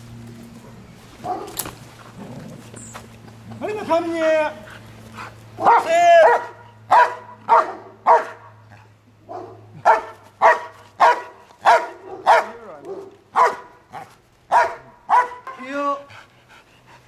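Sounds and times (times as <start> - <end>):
dog barking: 1.2 - 1.6, 5.6 - 8.5, 9.3 - 15.6.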